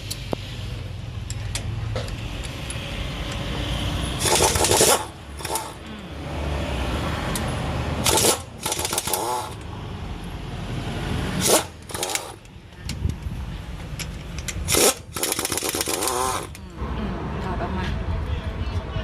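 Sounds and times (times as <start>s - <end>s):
power wrench bursts: 4.2s - 5.9s, 8.0s - 9.6s, 11.4s - 12.5s, 14.4s - 16.6s.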